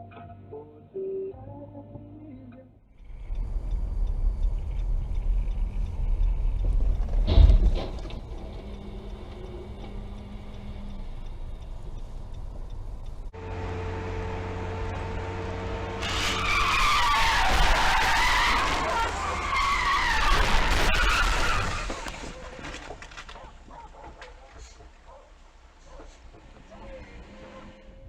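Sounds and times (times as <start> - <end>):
low engine hum: 2.9 - 16.8
car tyres squealing in a skid: 16.0 - 23.4.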